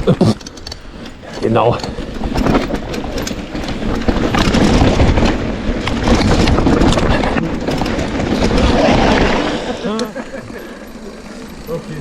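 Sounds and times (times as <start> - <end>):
bike rattling on rough trail: 0.0 - 12.0
wind rumbling on microphone: 1.7 - 10.6.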